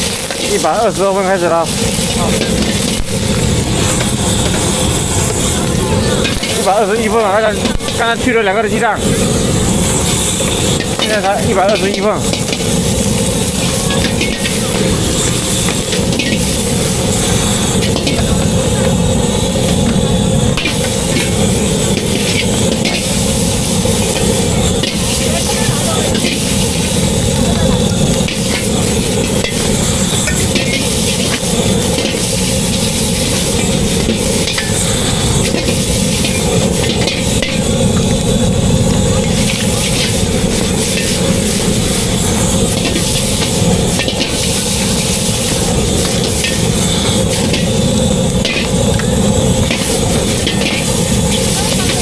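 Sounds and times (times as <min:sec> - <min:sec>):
utensils clinking: 0:00.0 - 0:03.1, 0:05.9 - 0:08.2, 0:10.0 - 0:37.9, 0:39.1 - 0:47.8, 0:48.4 - 0:52.0
food frying sizzle: 0:00.0 - 0:52.0
low cooking rumble: 0:00.0 - 0:52.0
utensils clicking and scraping: 0:39.2 - 0:47.7, 0:48.3 - 0:52.0.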